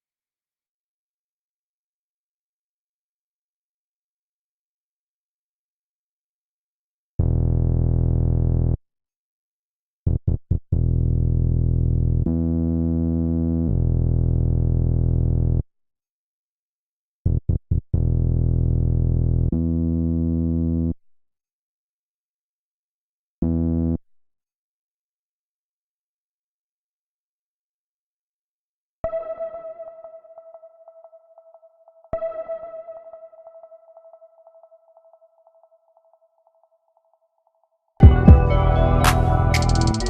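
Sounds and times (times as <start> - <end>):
synth electric piano chords: 38.0 - 40.0.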